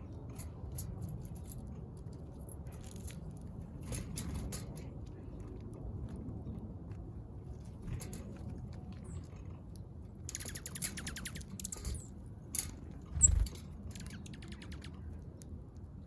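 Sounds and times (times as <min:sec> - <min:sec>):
birds rapid clicking: 0:10.3 - 0:15.1.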